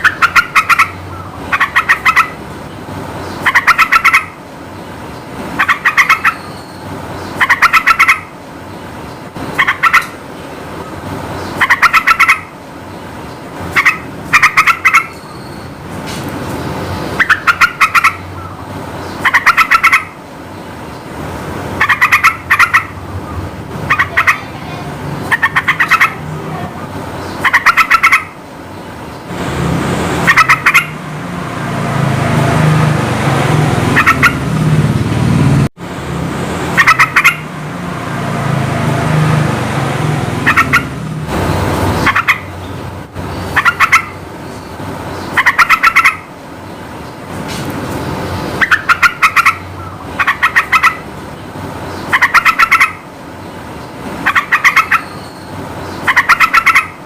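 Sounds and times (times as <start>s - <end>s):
bulbul calling: 0.0s - 2.4s, 3.2s - 4.4s, 5.6s - 8.3s, 9.5s - 10.2s, 10.8s - 12.6s, 13.3s - 15.8s, 16.8s - 20.2s, 21.8s - 29.3s, 30.2s - 31.0s, 33.8s - 34.6s, 36.7s - 37.5s, 40.4s - 41.0s, 41.6s - 46.3s, 48.2s - 53.1s, 54.2s - 57.0s
low rumbling noise: 28.3s - 45.2s.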